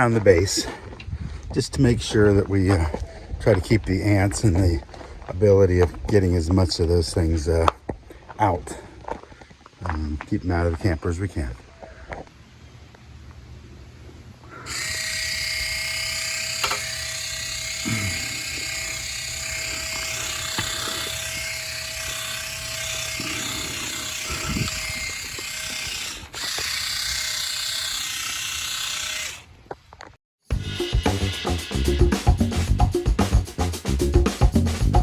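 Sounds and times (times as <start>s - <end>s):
sprayer motor hum: 14.7s - 29.4s, 30.5s - 32.6s
spray hissing: 30.5s - 34.0s.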